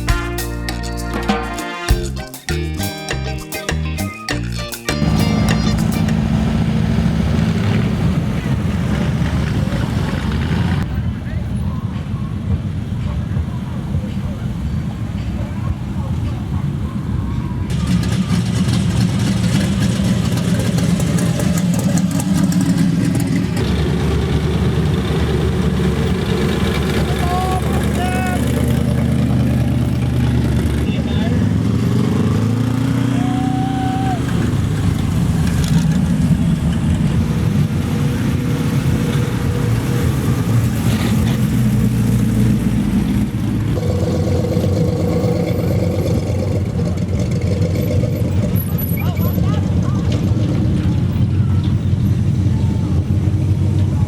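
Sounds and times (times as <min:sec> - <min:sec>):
car engine with deep exhaust: 0:05.0 - 0:11.0, 0:17.6 - 0:54.0.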